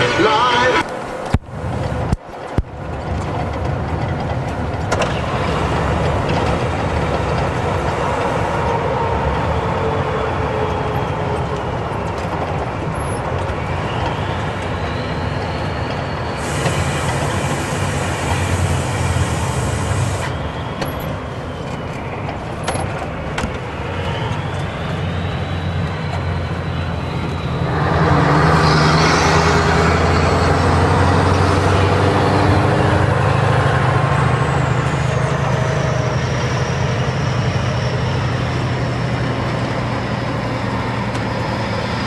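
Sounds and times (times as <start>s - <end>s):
truck engine rumbling: 0.0s - 42.0s
whistle-like tones: 13.0s - 22.6s, 23.7s - 28.0s.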